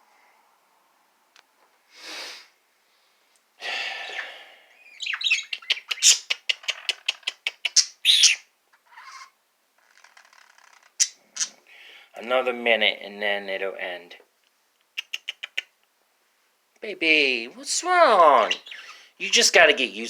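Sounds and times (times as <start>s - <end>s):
bird squawks: 4.0s - 9.4s, 18.4s - 19.1s
bird chirps and clicks: 4.9s - 8.4s, 14.8s - 15.9s.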